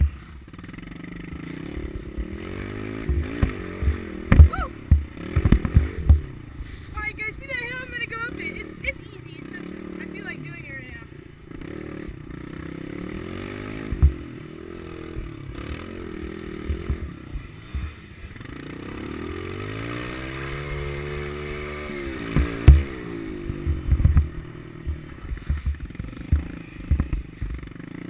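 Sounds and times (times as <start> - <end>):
small motorbike engine revving: 0.0 - 28.0
loud sharp thumps: 3.0 - 6.3, 13.8 - 14.3, 22.3 - 27.6.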